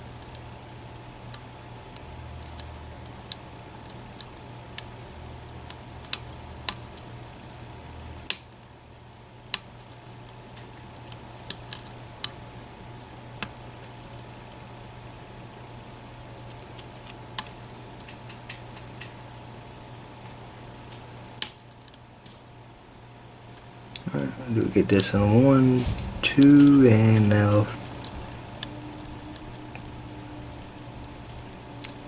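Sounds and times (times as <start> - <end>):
steady low hum: 22.4 - 32.0.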